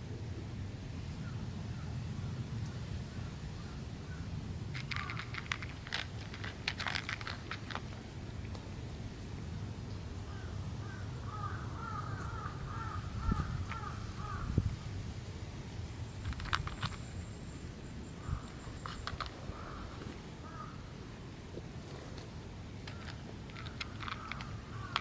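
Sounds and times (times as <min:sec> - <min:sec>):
sharp clicks: 0:04.8 - 0:08.6, 0:22.8 - 0:25.0.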